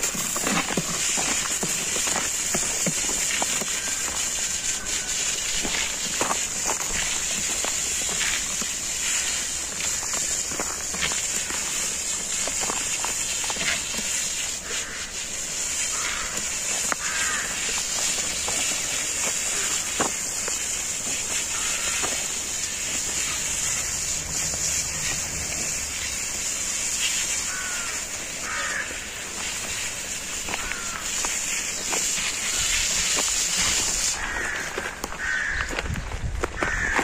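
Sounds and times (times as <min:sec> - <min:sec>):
high-pitched hiss: 0:00.0 - 0:35.8
birds chirping: 0:18.5 - 0:29.8.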